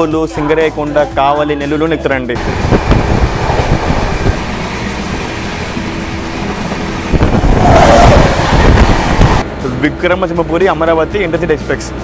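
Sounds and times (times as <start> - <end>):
train rumbling on rails: 2.4 - 9.7.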